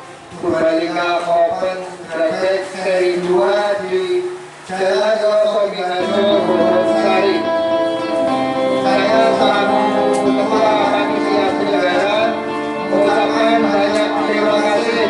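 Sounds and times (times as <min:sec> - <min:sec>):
music with sustained tones: 0:06.0 - 0:15.0.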